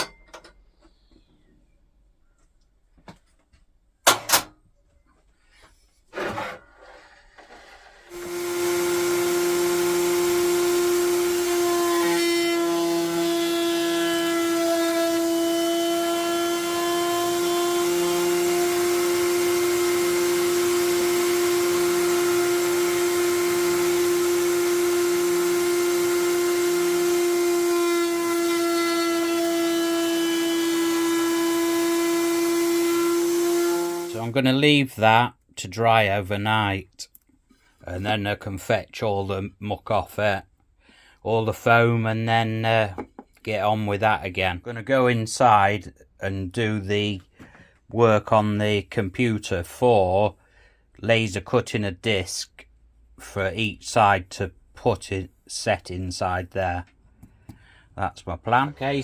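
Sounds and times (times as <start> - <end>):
table router running: 7.9 - 34.2.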